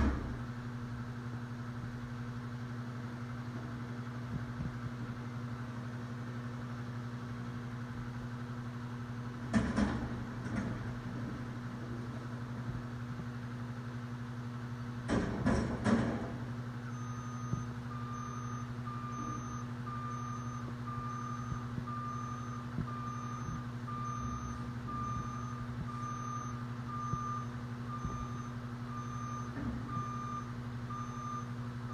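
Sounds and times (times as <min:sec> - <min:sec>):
diesel engine hum: 0:00.0 - 0:31.9
reversing alarm beeping: 0:16.8 - 0:31.9.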